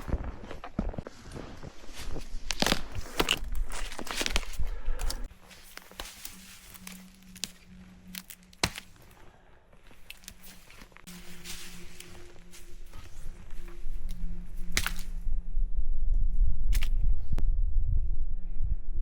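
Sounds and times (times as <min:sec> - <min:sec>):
dry branches snapping: 0:02.0 - 0:15.2, 0:16.7 - 0:17.0.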